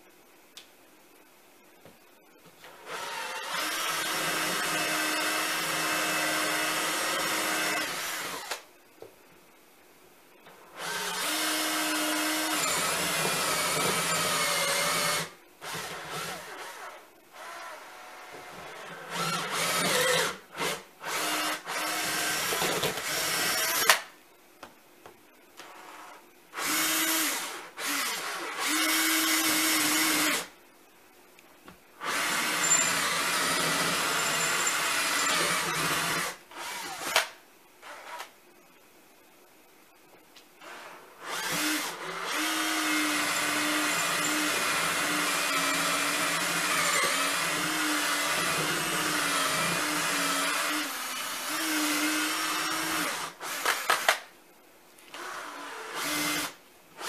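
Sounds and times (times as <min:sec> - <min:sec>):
power drill running: 0:02.7 - 0:08.6, 0:10.8 - 0:24.0, 0:25.6 - 0:30.5, 0:32.0 - 0:38.3, 0:40.6 - 0:54.2, 0:55.1 - 0:56.6.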